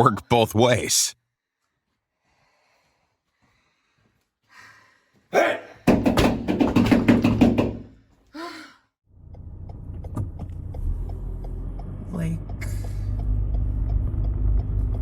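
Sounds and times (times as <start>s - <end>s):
loud rapid knocks: 5.9s - 7.9s.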